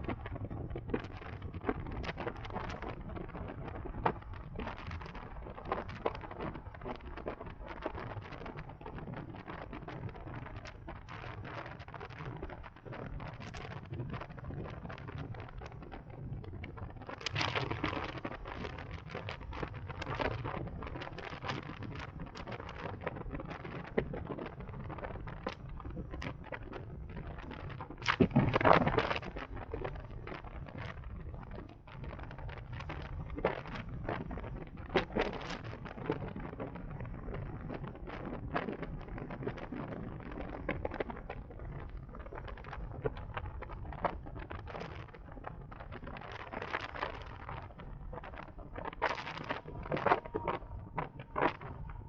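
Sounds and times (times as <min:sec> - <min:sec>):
wind buffeting microphone: 0:13.2 - 0:52.0
low road noise rumble: 0:41.5 - 0:52.0.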